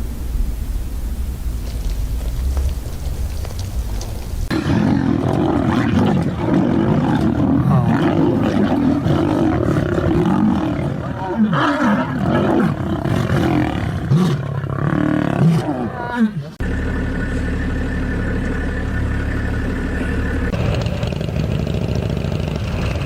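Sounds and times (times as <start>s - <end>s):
large animal roaring: 4.5s - 16.6s.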